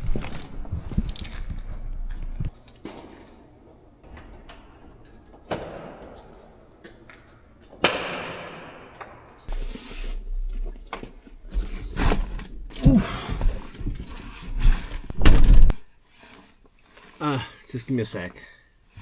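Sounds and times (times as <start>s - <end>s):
door slamming: 15.2s - 15.7s.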